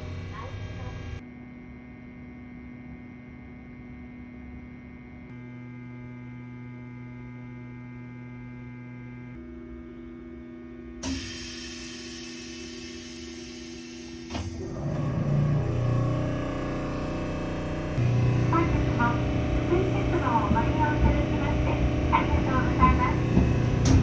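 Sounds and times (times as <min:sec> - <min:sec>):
electrical hum: 0:05.3 - 0:24.0
click: 0:11.0 - 0:11.4, 0:14.2 - 0:15.1.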